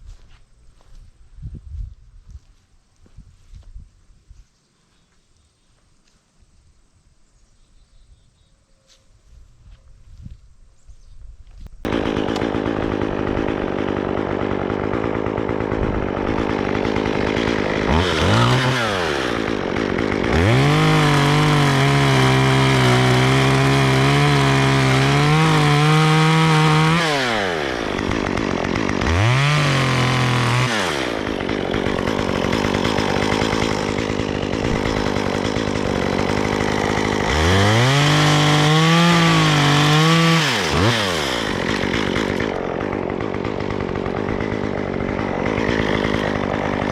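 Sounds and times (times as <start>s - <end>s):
chainsaw idling and revving: 11.8s - 46.9s.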